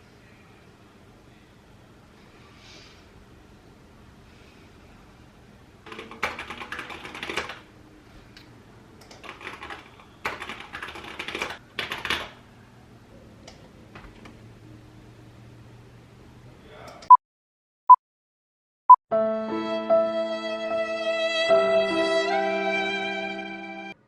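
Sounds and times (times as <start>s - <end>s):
typing on computer keyboard: 5.9s - 7.7s, 9.0s - 12.4s.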